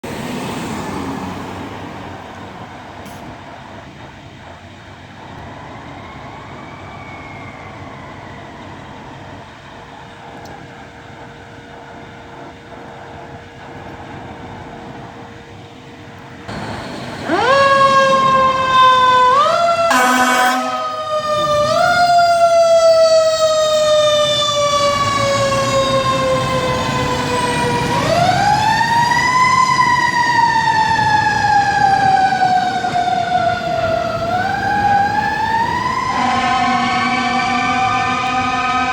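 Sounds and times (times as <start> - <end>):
fire truck siren wailing: 0.0 - 38.9
road noise: 0.0 - 38.9
horn blast: 19.8 - 21.2, 36.1 - 38.9.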